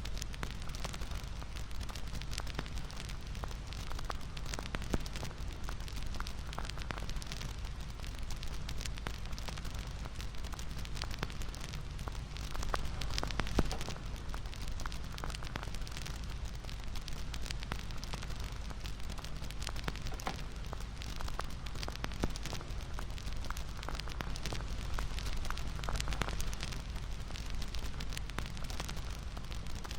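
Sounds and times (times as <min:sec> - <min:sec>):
wood fire crackling: 0:00.0 - 0:29.9
loud pop from fire: 0:10.5 - 0:16.2, 0:17.0 - 0:29.9.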